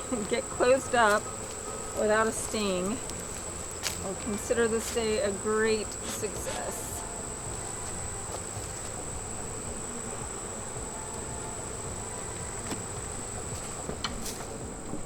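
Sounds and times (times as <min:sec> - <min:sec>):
honeybees buzzing: 0:00.0 - 0:15.0
light knocks on wooden hive: 0:07.5 - 0:15.0.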